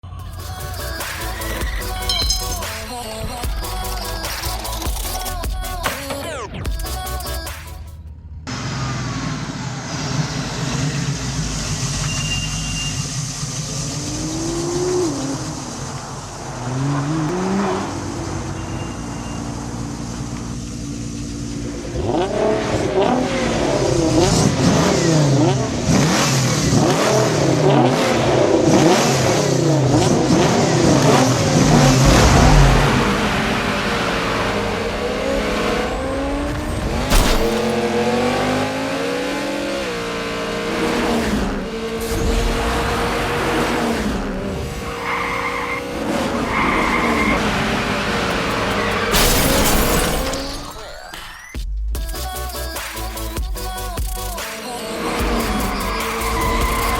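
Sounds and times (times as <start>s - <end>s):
race car engines revving: 8.1s - 49.4s, 54.4s - 56.9s.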